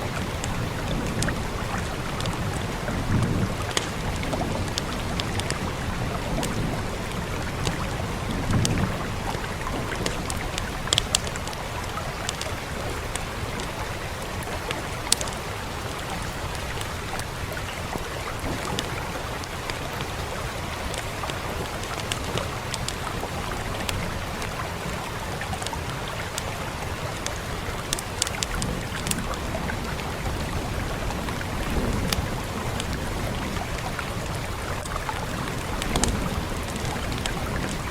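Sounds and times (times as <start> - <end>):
fire crackling and popping: 0.0 - 37.9
rain rushing: 0.0 - 37.9.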